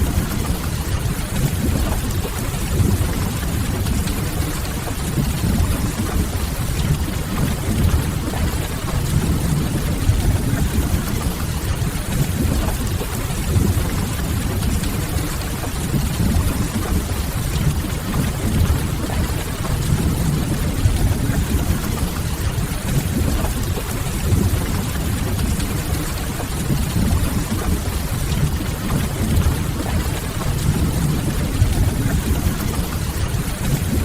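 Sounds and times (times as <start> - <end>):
steady rain: 0.0 - 34.0
deep even rumble: 26.6 - 34.0.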